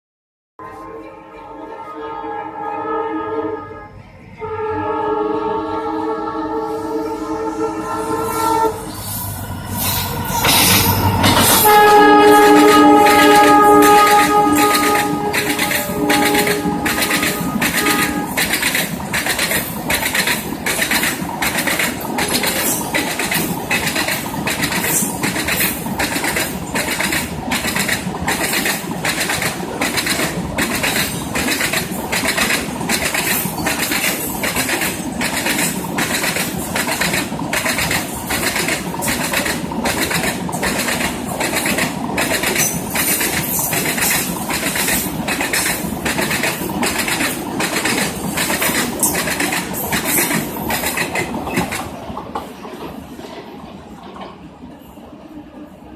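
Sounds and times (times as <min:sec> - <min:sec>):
train rumble: 0:00.6 - 0:55.9
train wheels clattering over rail joints: 0:09.8 - 0:54.5.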